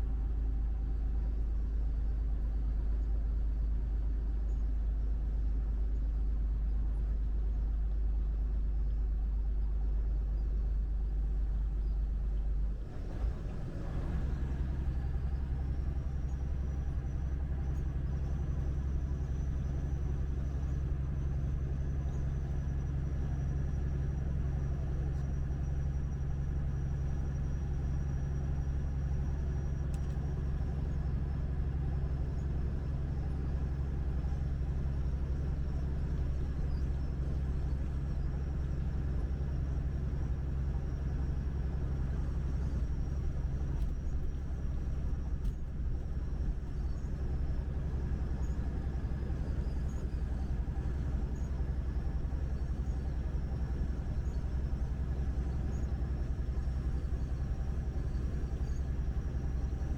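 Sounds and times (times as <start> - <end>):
road noise rumble: 12.1 - 59.9
truck engine drone: 12.6 - 59.9.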